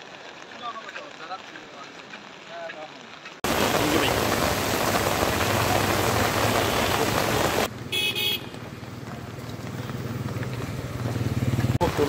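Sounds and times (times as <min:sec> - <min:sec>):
heavy rain rushing: 0:00.0 - 0:08.4, 0:10.1 - 0:12.0
vehicle horn toot: 0:06.5 - 0:07.1, 0:07.9 - 0:08.6.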